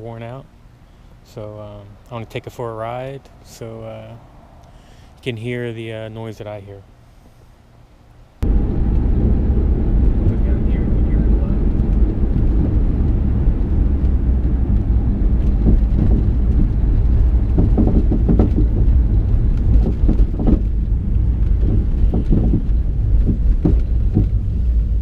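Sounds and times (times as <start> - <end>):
car road rumble: 8.4 - 25.0
suspension knocks and bangs: 11.6 - 25.0.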